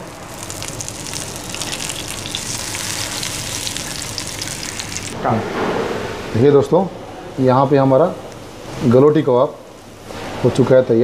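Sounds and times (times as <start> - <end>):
patties sizzling in a frying pan: 0.1 - 5.2.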